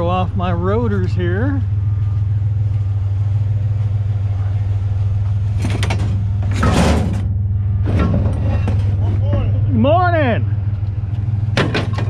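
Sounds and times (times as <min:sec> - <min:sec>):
truck engine idling: 0:00.0 - 0:12.0
noisy clatters: 0:05.3 - 0:09.5.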